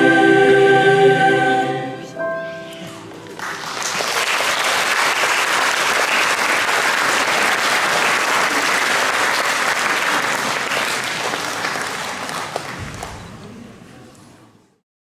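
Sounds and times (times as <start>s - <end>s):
audience applauding: 3.1s - 13.5s.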